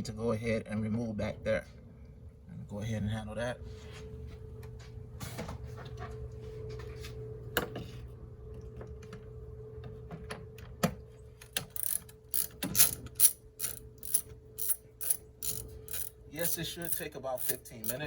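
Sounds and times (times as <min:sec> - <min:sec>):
faint steady hum: 0:00.0 - 0:18.0
ratchet wrench ratcheting: 0:11.7 - 0:18.0.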